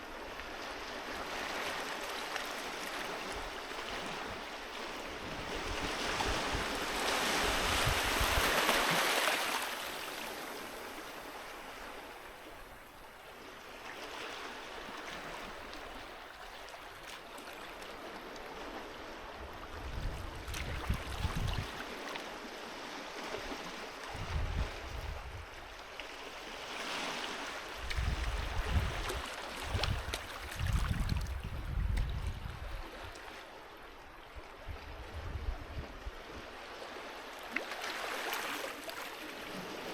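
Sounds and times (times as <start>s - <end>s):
sea waves washing onto beach: 0.0s - 12.2s.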